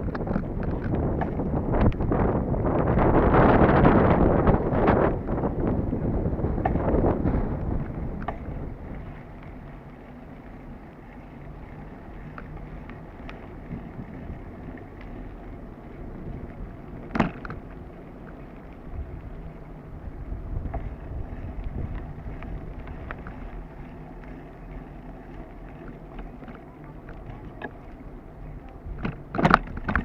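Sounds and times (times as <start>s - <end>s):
bicycle tyres rumbling on dirt: 0.0s - 30.0s
bike clicks and rattles: 0.0s - 30.0s
wind on microphone: 0.0s - 30.0s.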